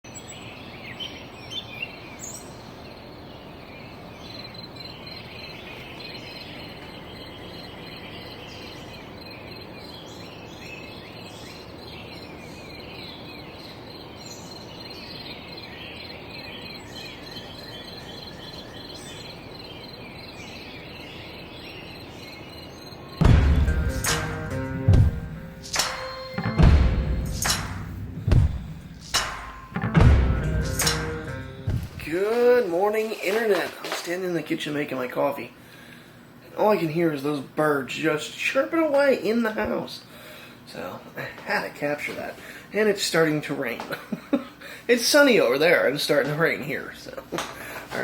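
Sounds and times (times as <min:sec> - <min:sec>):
birds chirping and trilling: 0:00.0 - 0:48.0
steady outdoor hiss: 0:00.1 - 0:48.0
soft knocks: 0:31.6 - 0:32.1.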